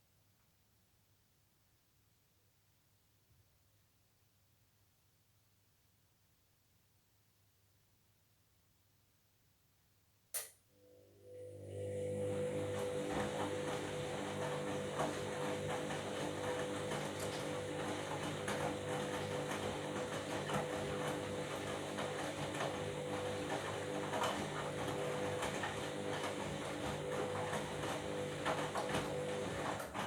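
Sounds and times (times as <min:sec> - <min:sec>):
washing machine motor whine: 0:10.8 - 0:30.0.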